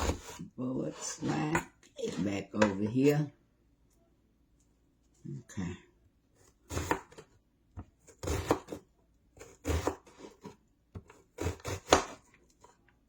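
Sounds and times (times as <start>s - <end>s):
knife chopping on cutting board: 6.7s - 7.2s, 8.2s - 8.8s, 9.4s - 12.2s.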